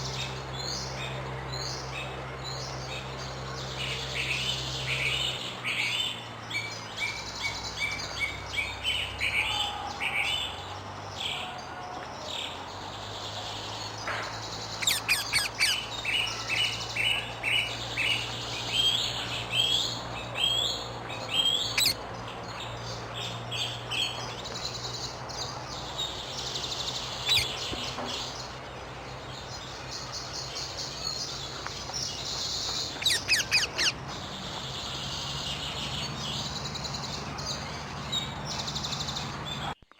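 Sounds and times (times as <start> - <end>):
parakeets calling shrilly: 12.7 - 39.8.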